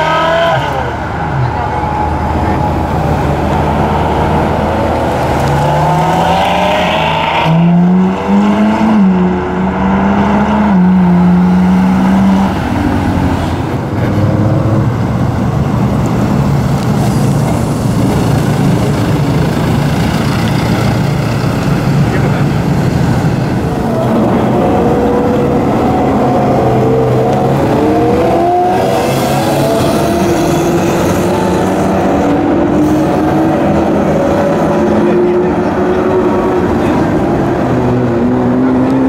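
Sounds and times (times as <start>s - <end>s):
supercar engine accelerating: 0.0s - 39.0s
rough engine rumble: 12.6s - 38.5s.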